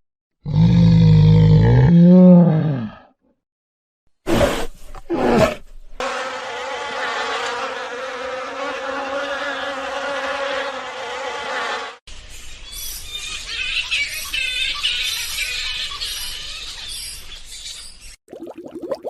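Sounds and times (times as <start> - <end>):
bee buzzing: 6.0 - 12.0.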